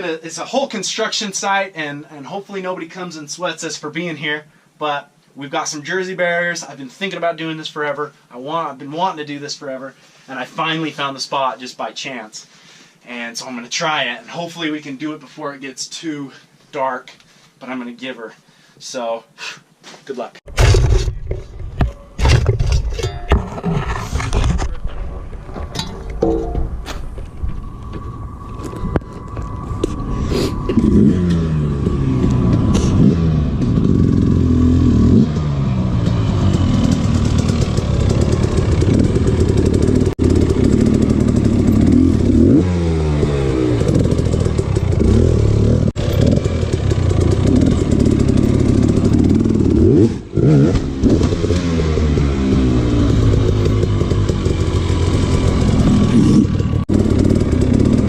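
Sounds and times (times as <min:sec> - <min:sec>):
dirt bike engine revving: 0:30.0 - 0:58.0.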